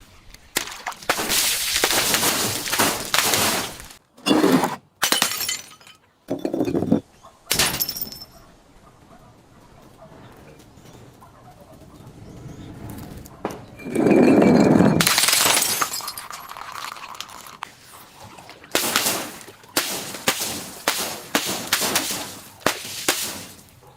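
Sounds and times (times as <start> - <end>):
glass bottle crushing and breaking: 0.6 - 8.4, 13.7 - 17.6, 18.8 - 23.7
glass shards tinkling: 5.1 - 8.4, 13.8 - 17.5.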